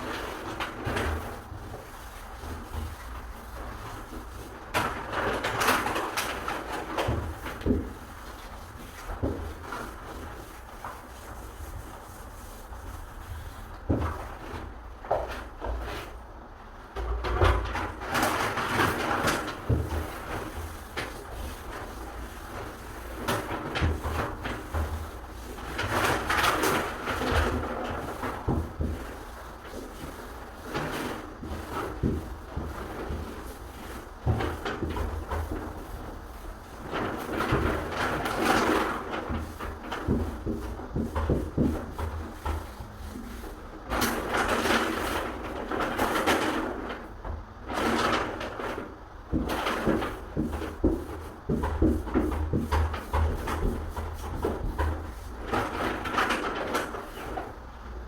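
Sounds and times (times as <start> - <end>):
knocks and bumps on wooden door: 49.3 - 55.5.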